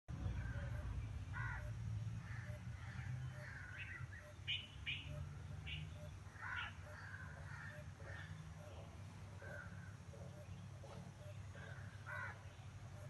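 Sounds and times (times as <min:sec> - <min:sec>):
bird chirps: 0:02.4 - 0:08.8.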